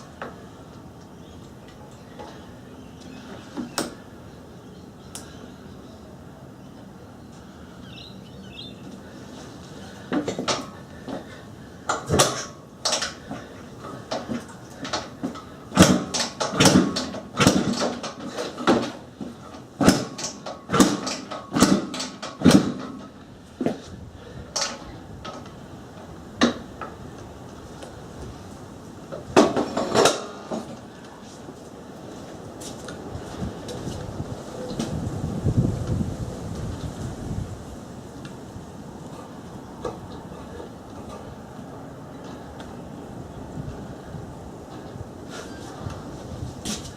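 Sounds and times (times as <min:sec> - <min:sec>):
motorcycle kick-start clanks: 0:11.9 - 0:23.2, 0:24.5 - 0:25.5.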